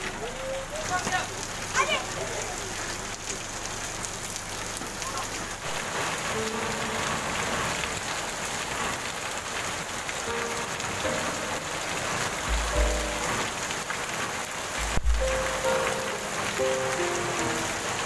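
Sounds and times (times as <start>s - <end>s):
heavy rain on pavement: 0.0s - 18.0s
runoff water pouring: 0.0s - 18.0s
low thump: 12.4s - 13.2s, 14.8s - 15.2s.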